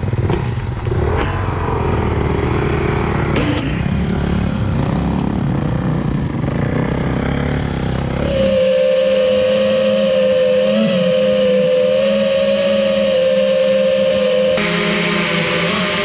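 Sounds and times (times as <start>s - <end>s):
engine low rumble: 0.0s - 9.7s
steady high whine: 0.1s - 16.0s.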